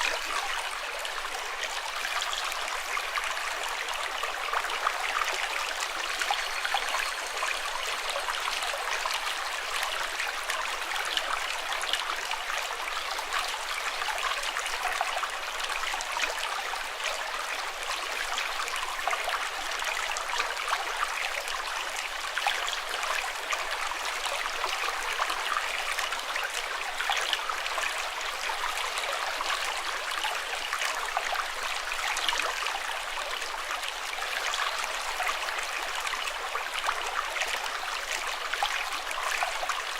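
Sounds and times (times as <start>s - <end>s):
water flowing and splashing: 0.0s - 12.7s.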